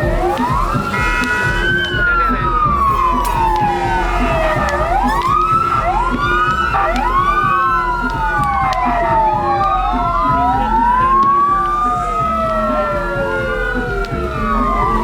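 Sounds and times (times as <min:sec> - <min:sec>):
sirens wailing: 0:00.0 - 0:15.0
firework pops: 0:04.5 - 0:05.4.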